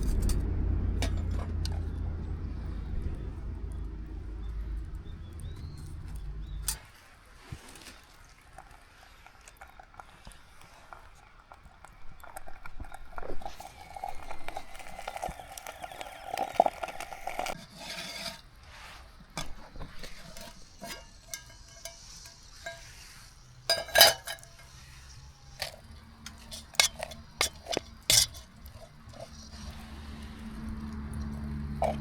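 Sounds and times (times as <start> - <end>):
cookware and utensils clinking: 19.4 - 29.8, 30.9 - 32.0.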